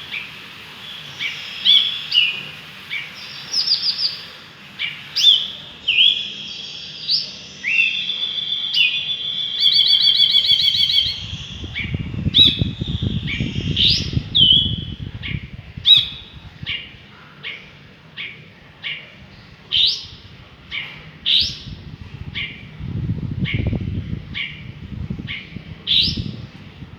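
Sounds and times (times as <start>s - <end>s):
bulbul calling: 0.0s - 26.5s
low rumble: 11.0s - 17.1s, 19.2s - 26.9s.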